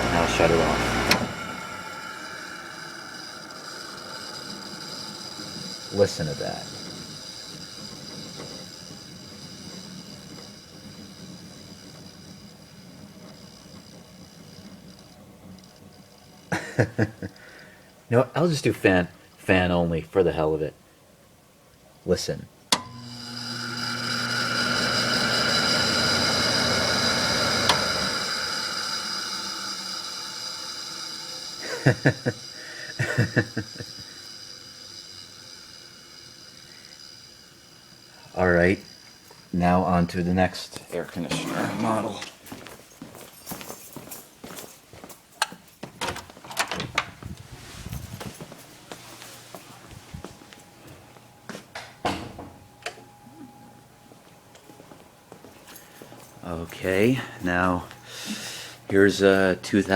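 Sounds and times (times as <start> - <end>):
man talking: 0.0 - 1.0, 5.9 - 6.8, 18.1 - 20.8, 22.1 - 22.5, 39.6 - 42.3, 56.4 - 58.0, 58.9 - 59.9
fan motor humming: 0.0 - 20.4, 21.2 - 43.9, 46.2 - 59.9.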